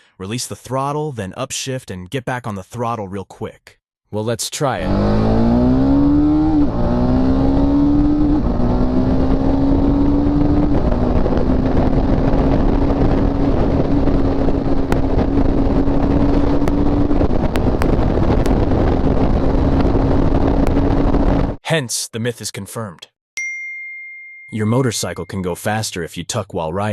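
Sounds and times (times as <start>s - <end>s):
motorcycle engine shifting gears: 4.8s - 21.5s
wind rushing: 4.8s - 21.6s.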